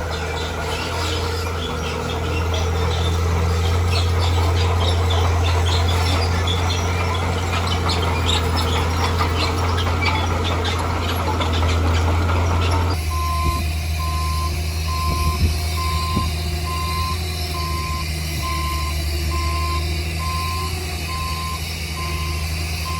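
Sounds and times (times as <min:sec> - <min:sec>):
diesel machine droning: 0:00.0 - 0:22.9.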